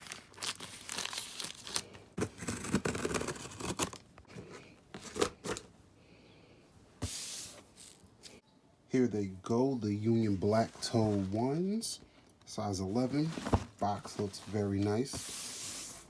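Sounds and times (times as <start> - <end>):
packaging being torn and rustled: 0.0 - 4.1.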